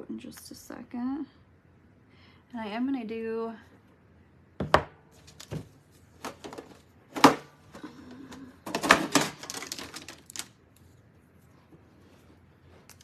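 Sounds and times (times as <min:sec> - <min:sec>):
craft supplies clattering on table: 0:08.6 - 0:10.5.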